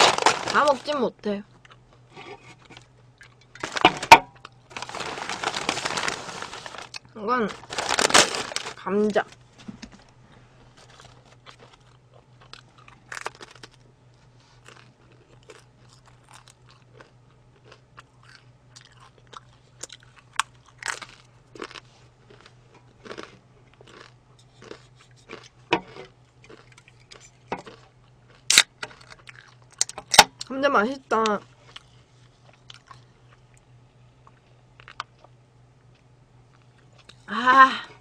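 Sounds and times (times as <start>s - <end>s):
crunching fried potatoes: 0.0s - 9.4s, 10.7s - 37.3s
faint low hum: 0.0s - 38.0s
chewing: 10.8s - 13.8s, 14.4s - 30.5s, 31.6s - 37.3s.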